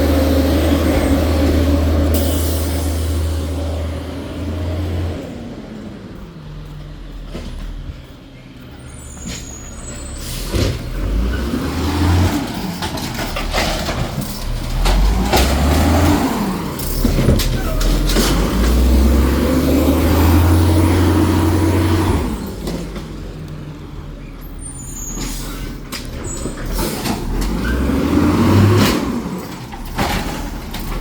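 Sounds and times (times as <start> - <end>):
garbage truck engine revving: 0.0 - 7.9, 8.9 - 31.0
high squeal: 8.8 - 10.6.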